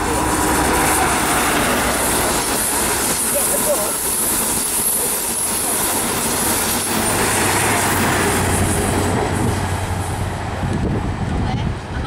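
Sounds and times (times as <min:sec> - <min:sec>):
low diesel engine hum: 0:00.0 - 0:12.0
train rolling rail noise: 0:00.0 - 0:12.0.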